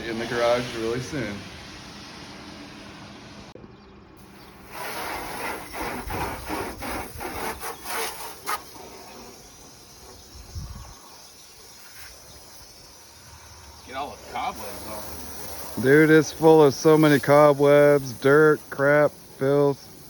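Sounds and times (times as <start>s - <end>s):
rubbing strokes on car body: 4.2s - 10.9s, 14.2s - 20.0s.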